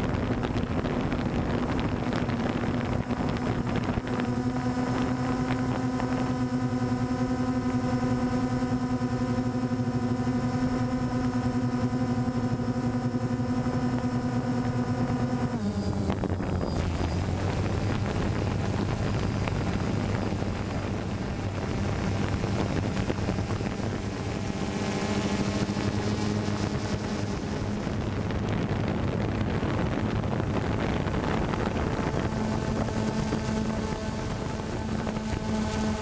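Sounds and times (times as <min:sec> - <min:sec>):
drone propellers humming: 0:00.0 - 0:36.0
wind on microphone: 0:00.0 - 0:36.0.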